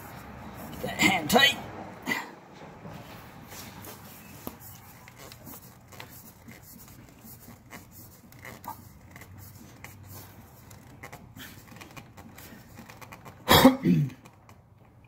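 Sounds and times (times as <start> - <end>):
oil filter clicking and scraping: 3.8 - 13.5.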